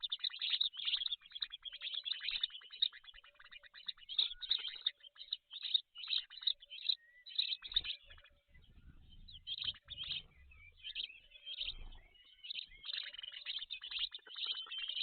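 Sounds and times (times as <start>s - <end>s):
high-pitched bird chirping: 0.0s - 15.0s
faint low rumble: 8.1s - 12.8s.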